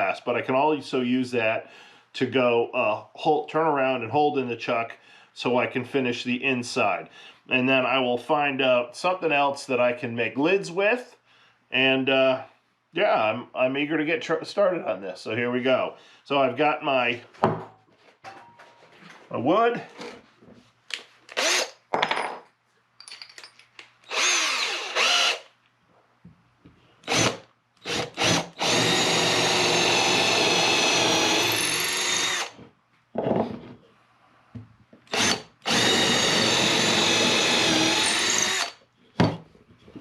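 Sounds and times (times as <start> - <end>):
power drill boring into wood: 21.3 - 21.8, 24.1 - 25.5, 27.0 - 32.6, 35.1 - 38.8.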